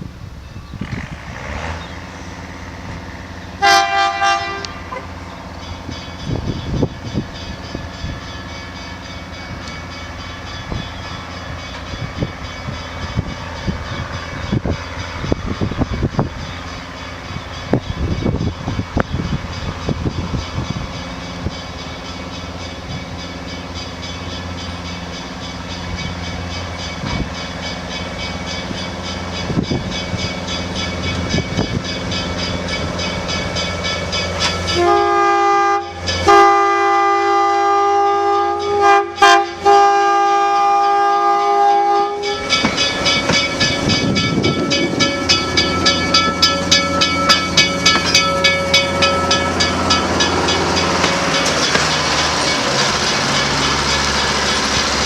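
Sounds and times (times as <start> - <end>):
train rumbling: 0.0 - 55.0
train whistle chord: 3.6 - 5.1, 34.7 - 42.7
train wheels clattering: 3.7 - 37.4, 41.3 - 55.0.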